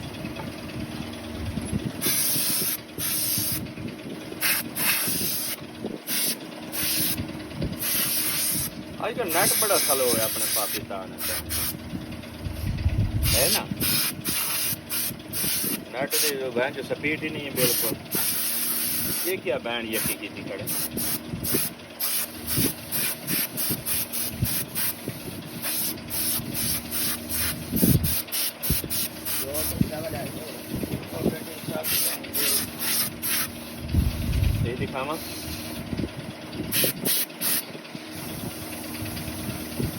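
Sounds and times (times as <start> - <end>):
low background rumble: 0.0 - 16.0, 16.6 - 37.1
short hissing spray bursts: 2.0 - 3.6, 4.4 - 7.2, 7.8 - 8.7, 9.3 - 11.8, 13.2 - 16.4, 17.6 - 19.3, 20.7 - 33.8, 35.2 - 35.8, 36.7 - 38.8.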